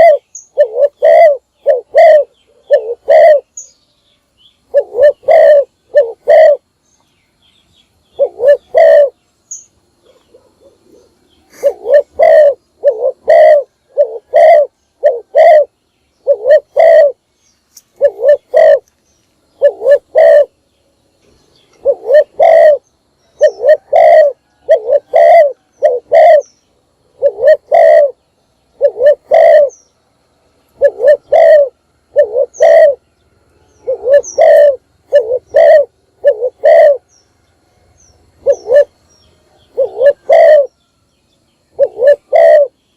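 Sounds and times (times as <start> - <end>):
dove cooing: 0.0 - 3.7, 4.6 - 6.7, 8.1 - 9.2, 9.9 - 17.2, 17.9 - 18.9, 19.5 - 20.6, 21.7 - 26.5, 27.1 - 29.8, 30.7 - 33.1, 33.7 - 37.1, 38.4 - 40.8, 41.7 - 42.8.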